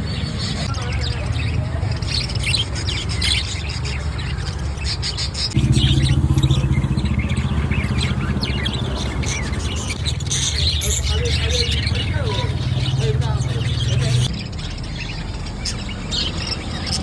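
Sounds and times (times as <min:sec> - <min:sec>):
steady low hum: 0:05.5 - 0:10.6, 0:11.7 - 0:14.3
parrots chirping: 0:05.6 - 0:15.1.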